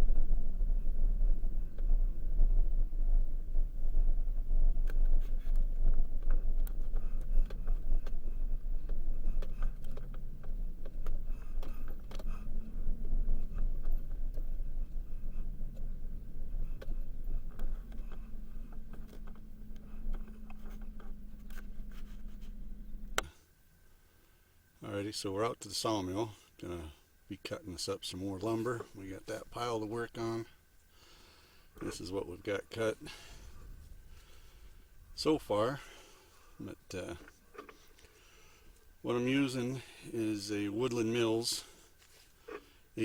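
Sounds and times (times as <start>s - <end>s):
vehicle driving low rumble: 0.0s - 23.3s
steady hum: 0.0s - 43.0s.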